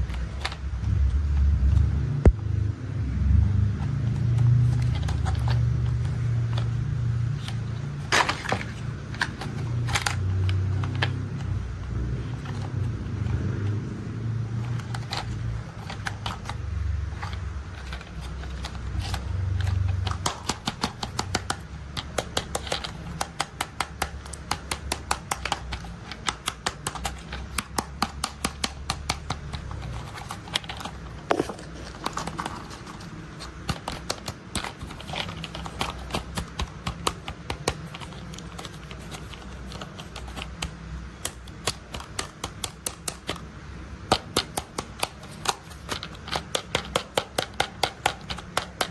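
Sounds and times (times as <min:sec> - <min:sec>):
low engine-like rumble: 0:00.6 - 0:08.1
plastic toys clicking: 0:04.2 - 0:13.4, 0:14.5 - 0:48.9.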